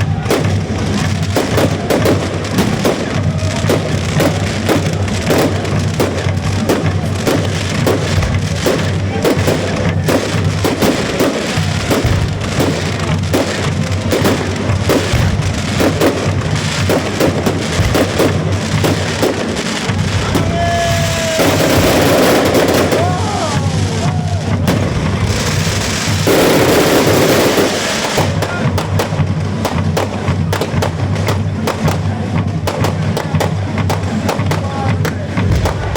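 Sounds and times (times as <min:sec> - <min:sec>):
firework whistling: 0:00.0 - 0:28.9
fireworks crackling: 0:00.0 - 0:35.9
music playing: 0:00.0 - 0:35.9.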